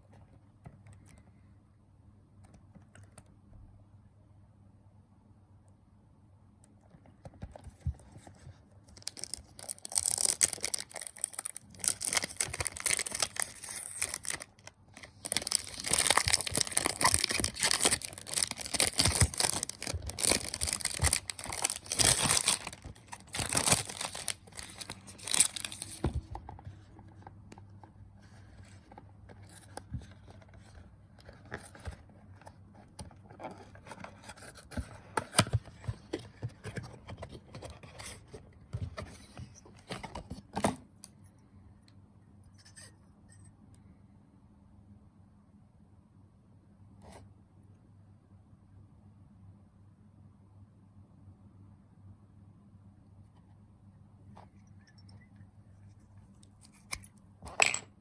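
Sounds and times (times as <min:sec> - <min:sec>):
packaging torn and crinkled: 0:09.0 - 0:26.1.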